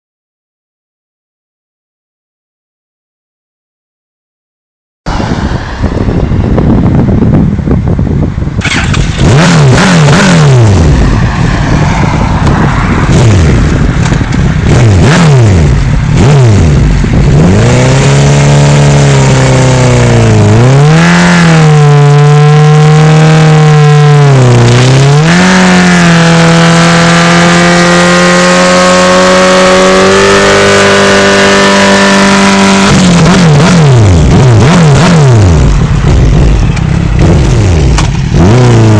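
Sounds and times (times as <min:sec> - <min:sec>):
motorcycle engine droning: 0:05.1 - 0:38.9
motorcycle engines revving past: 0:08.6 - 0:38.9.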